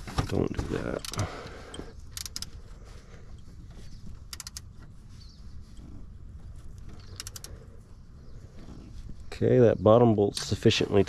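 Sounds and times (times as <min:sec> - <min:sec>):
ratchet clicking: 0:01.0 - 0:02.6, 0:04.2 - 0:04.8, 0:07.0 - 0:07.6.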